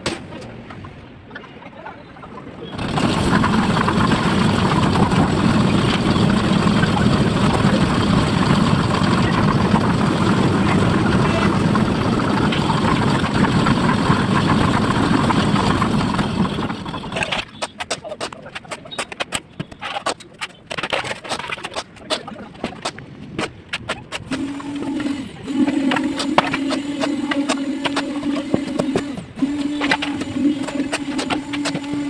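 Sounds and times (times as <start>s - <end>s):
machine engine running: 2.7s - 17.6s, 24.2s - 32.0s.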